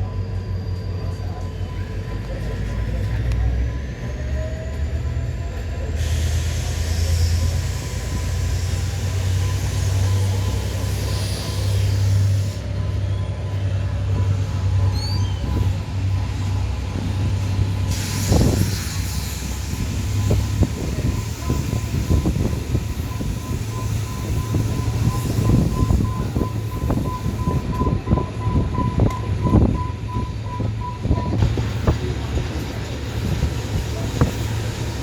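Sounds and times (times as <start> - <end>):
train rumbling: 0.0 - 35.0
train hissing: 5.6 - 13.0, 14.3 - 27.8, 30.7 - 35.0.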